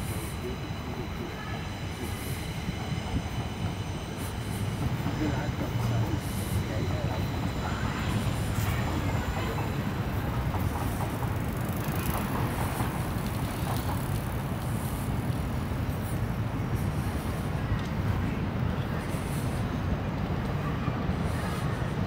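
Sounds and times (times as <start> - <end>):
train rumbling over viaduct: 0.0 - 22.0.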